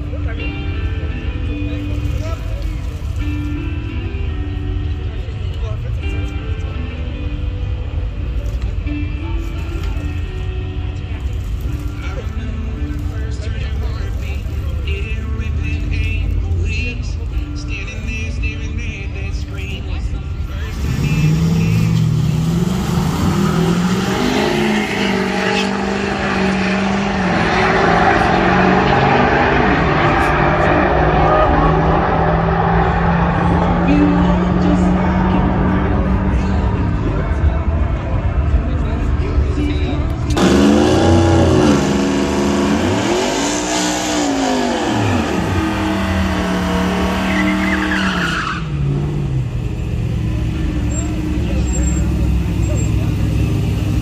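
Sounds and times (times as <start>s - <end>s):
car engine revving: 20.6s - 54.0s
tyres squealing: 20.8s - 33.6s, 41.2s - 49.1s
vehicle engine running: 48.8s - 54.0s.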